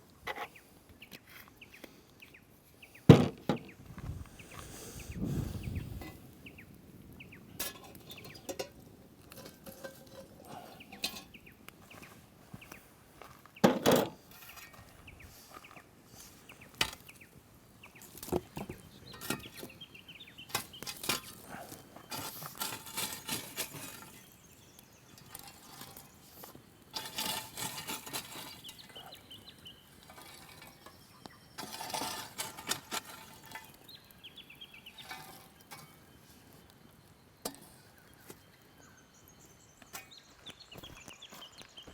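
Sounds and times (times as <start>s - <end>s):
pots and utensils clinking: 7.5s - 11.4s, 18.1s - 19.8s, 20.4s - 24.3s, 25.1s - 33.9s, 34.9s - 36.1s.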